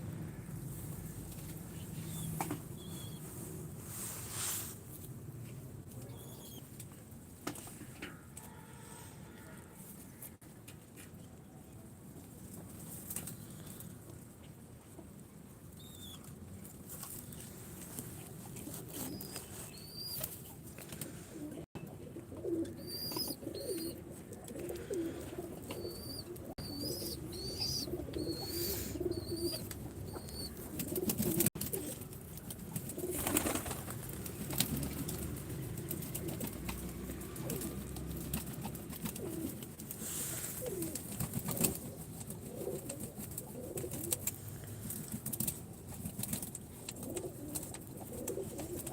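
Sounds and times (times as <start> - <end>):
pigeons cooing: 18.5 - 32.1, 34.4 - 44.3, 46.9 - 48.9
small bird chirping: 25.7 - 30.7
wings flapping: 25.7 - 48.9.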